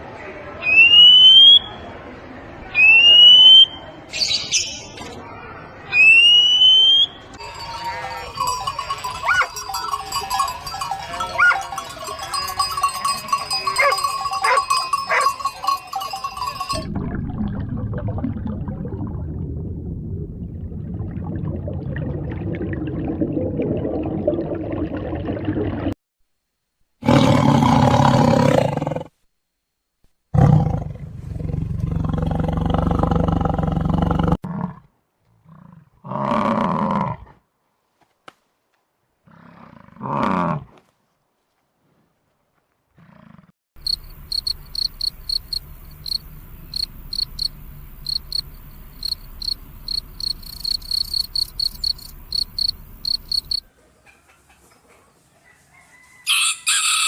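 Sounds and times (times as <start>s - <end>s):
crickets chirping: 7.4s - 16.8s, 43.8s - 53.6s.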